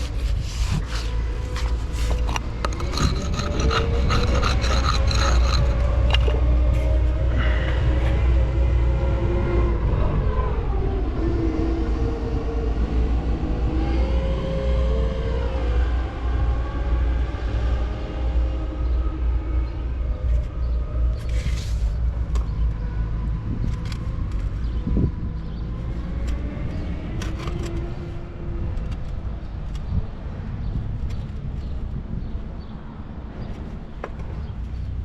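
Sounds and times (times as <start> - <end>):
machinery low rumble: 0.0 - 33.6
whining tone: 0.7 - 13.3.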